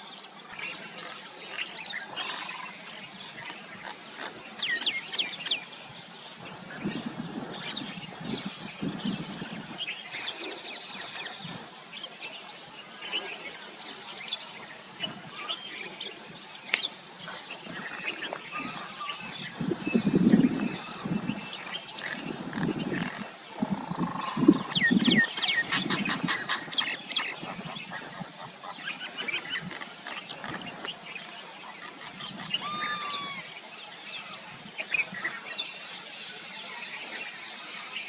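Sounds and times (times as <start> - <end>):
high-pitched insect trill: 17.8 - 27.0
birds chirping and whistling: 23.7 - 31.0, 32.2 - 33.5.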